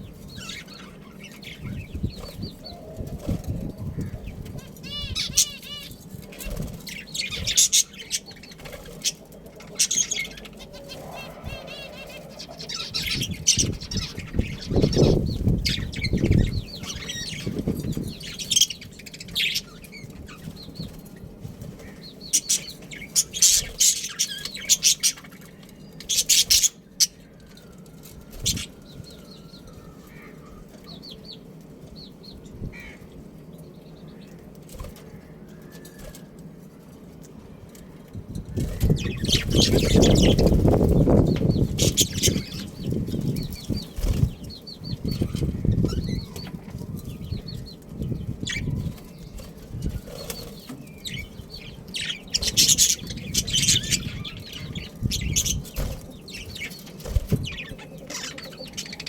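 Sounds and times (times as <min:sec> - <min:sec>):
bird chirps and calls: 0:00.0 - 0:21.1, 0:21.8 - 0:27.3, 0:38.5 - 0:59.0
birds flapping wings: 0:06.0 - 0:07.8, 0:43.6 - 0:44.4, 0:49.0 - 0:50.8, 0:55.2 - 0:57.7.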